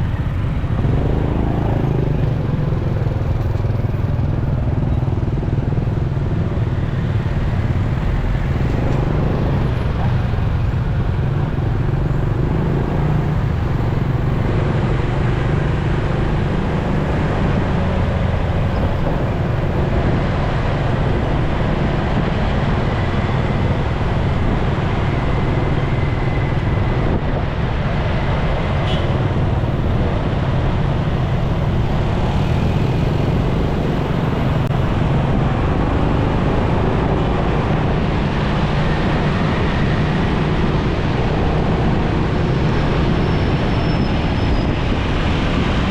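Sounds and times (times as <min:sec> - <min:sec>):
motorcycle engine running: 0:00.0 - 0:20.0
road noise: 0:00.0 - 0:45.9
wind noise: 0:00.0 - 0:45.9.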